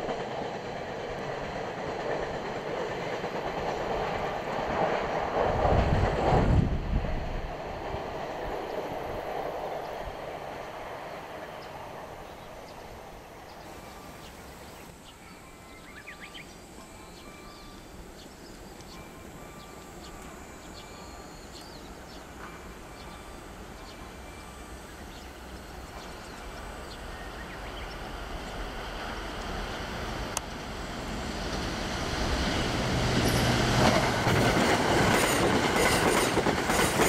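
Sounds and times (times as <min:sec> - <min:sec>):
electric train rumble: 0:00.0 - 0:37.0
passing train running noise: 0:00.0 - 0:37.0
faint chirps: 0:11.3 - 0:28.5.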